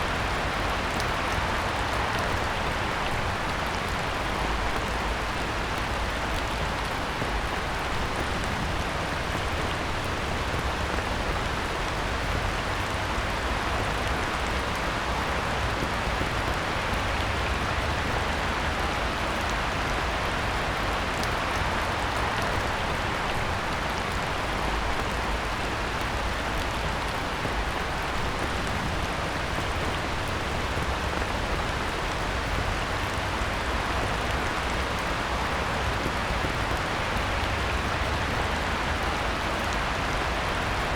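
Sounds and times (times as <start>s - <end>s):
heavy rain on pond: 0.0s - 40.9s.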